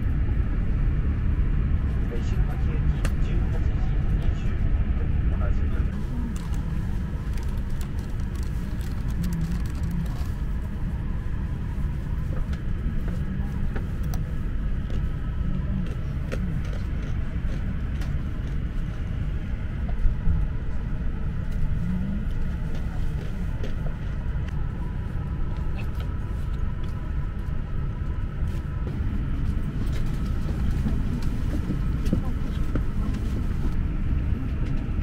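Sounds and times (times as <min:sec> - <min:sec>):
train cabin rumble: 0:00.0 - 0:35.0.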